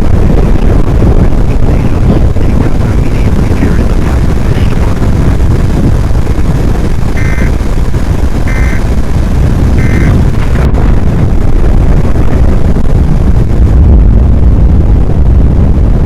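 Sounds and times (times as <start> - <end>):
wind buffeting microphone: 0.0 - 16.0
short electronic beeps: 7.2 - 7.5, 8.5 - 8.8, 9.8 - 10.2.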